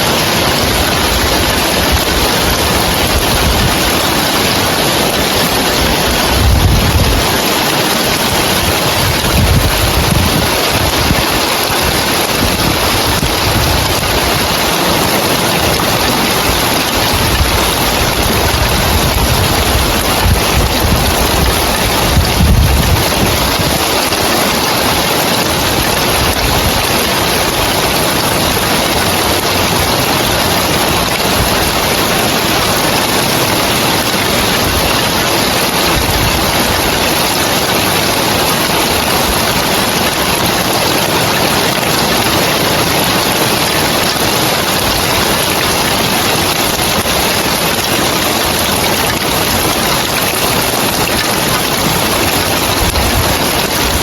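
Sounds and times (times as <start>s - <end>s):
rain on roof tiles: 0.0s - 54.0s.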